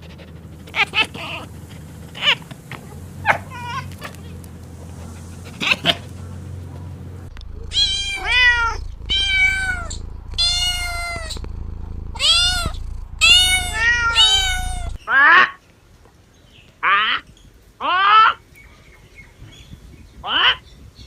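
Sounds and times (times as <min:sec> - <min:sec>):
cat meowing: 0:07.4 - 0:15.0.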